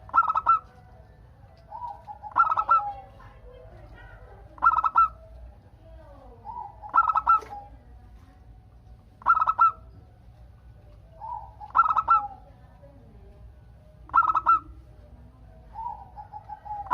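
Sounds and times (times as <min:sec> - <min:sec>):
dove staccato coos: 0:00.0 - 0:00.7, 0:01.6 - 0:03.1, 0:03.9 - 0:05.4, 0:06.5 - 0:07.8, 0:09.2 - 0:10.0, 0:11.2 - 0:12.4, 0:14.1 - 0:14.8, 0:15.8 - 0:16.9
faint dove calls: 0:00.0 - 0:01.0, 0:01.6 - 0:05.6, 0:06.3 - 0:07.9, 0:09.2 - 0:10.0, 0:11.1 - 0:12.6, 0:14.0 - 0:14.9, 0:15.6 - 0:16.9.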